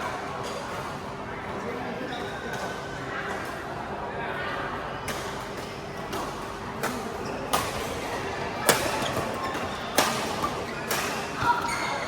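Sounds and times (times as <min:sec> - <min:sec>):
rackets striking shuttlecock: 0:06.1 - 0:11.5.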